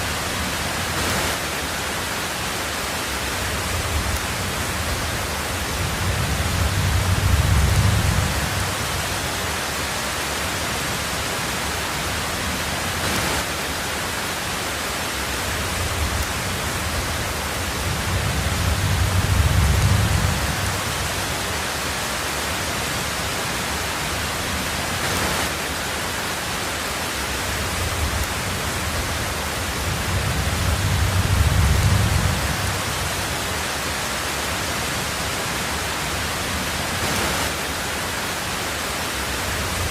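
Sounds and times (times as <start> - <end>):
heavy rain on a tin roof: 0.0 - 39.9
rolls of thunder: 29.7 - 32.9.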